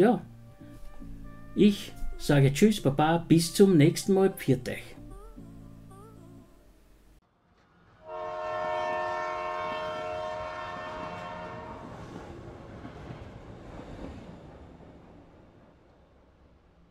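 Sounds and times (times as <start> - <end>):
train rumble: 7.4 - 16.9
train horn blast: 8.0 - 12.2.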